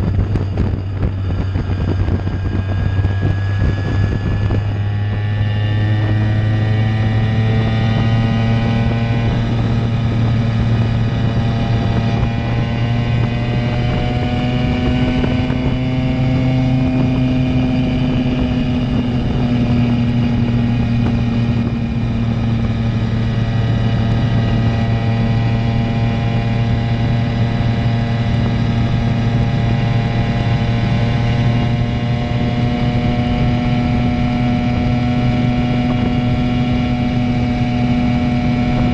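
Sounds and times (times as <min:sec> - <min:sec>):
moped engine running: 0:00.0 - 0:38.9.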